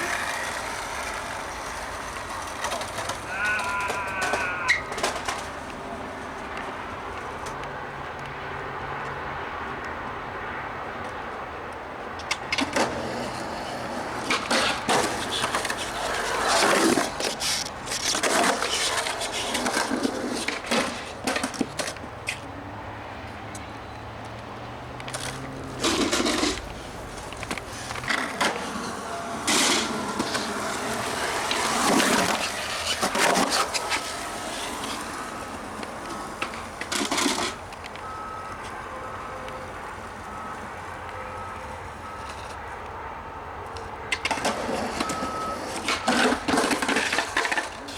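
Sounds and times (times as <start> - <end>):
skateboard clacks and knocks: 0.0 - 5.9, 12.2 - 22.4, 25.0 - 38.8
skateboard grinding: 0.0 - 7.5, 12.3 - 22.4, 24.9 - 41.0, 44.1 - 47.9
skateboard rolling: 0.0 - 9.0, 11.0 - 42.6, 43.8 - 47.9.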